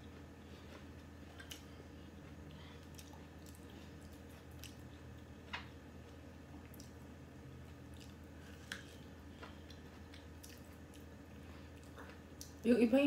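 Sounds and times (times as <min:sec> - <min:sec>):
wet chewing and mouth smacks: 0:00.0 - 0:07.1, 0:07.8 - 0:12.6
steady low hum: 0:00.0 - 0:13.0.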